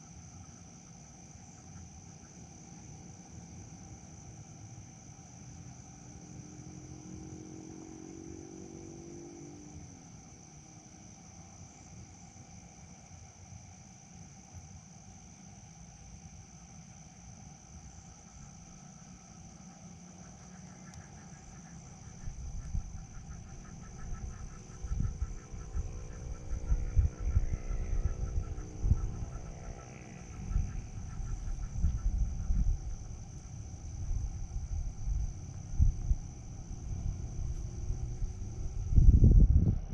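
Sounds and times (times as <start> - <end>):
crickets chirring: 0.0 - 39.9
wind buffeting microphone: 21.9 - 39.9.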